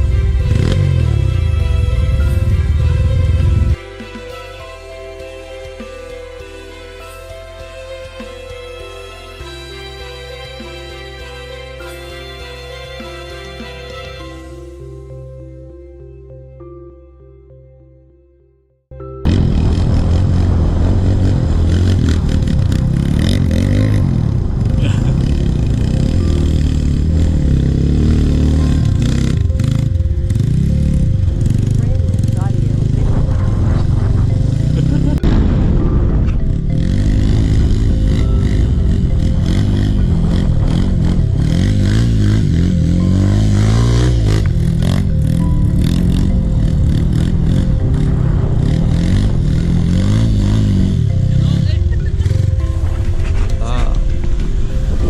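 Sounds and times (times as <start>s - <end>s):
motorcycle engine revving: 0.0s - 3.8s, 19.2s - 35.3s, 36.4s - 53.1s
motorcycle rattling over rough ground: 19.2s - 55.0s.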